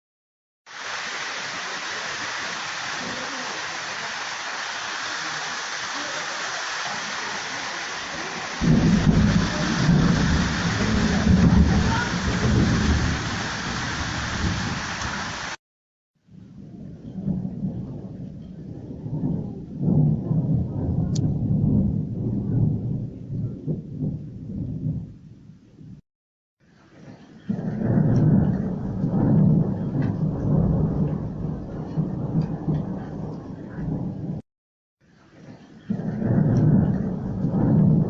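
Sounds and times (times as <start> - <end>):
rain hissing: 0.7 - 15.6, 26.6 - 34.4, 35.0 - 38.0
thunder rumbling: 0.8 - 15.6, 16.3 - 26.0, 27.5 - 34.4, 35.9 - 38.0.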